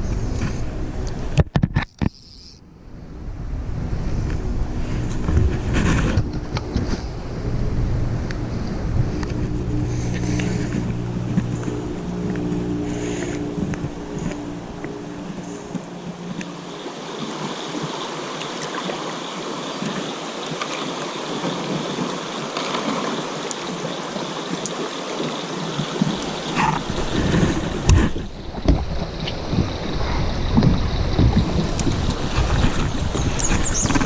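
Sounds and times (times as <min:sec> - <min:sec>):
river water rushing: 0:06.8 - 0:34.0.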